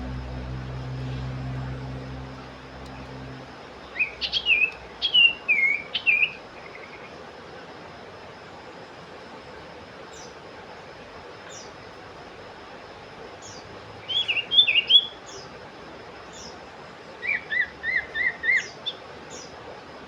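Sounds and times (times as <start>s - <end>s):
bird calling high falling notes: 17.2s - 19.0s.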